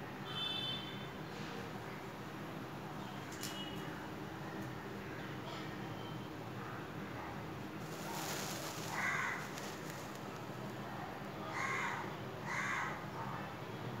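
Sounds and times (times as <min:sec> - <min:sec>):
bird calling: 0:07.9 - 0:10.2.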